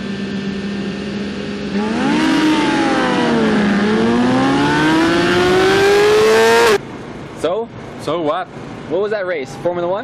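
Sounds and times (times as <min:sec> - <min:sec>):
motorcycle engine revving: 0:00.0 - 0:06.8.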